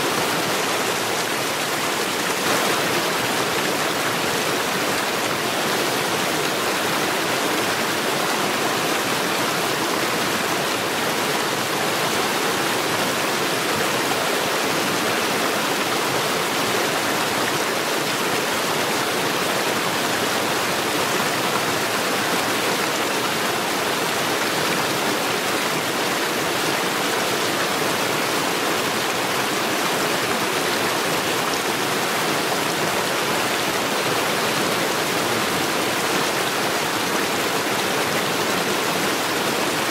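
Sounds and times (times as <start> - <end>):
stream water rushing over stones: 0.0 - 39.9.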